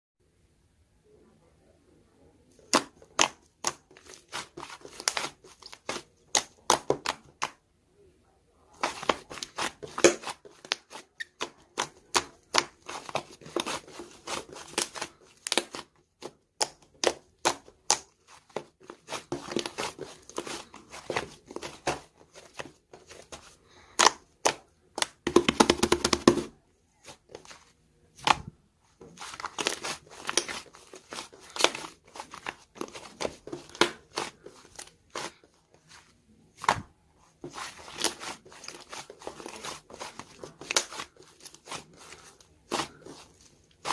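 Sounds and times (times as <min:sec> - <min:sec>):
crinkling and tearing: 0:27.0 - 0:36.0, 0:37.4 - 0:43.9.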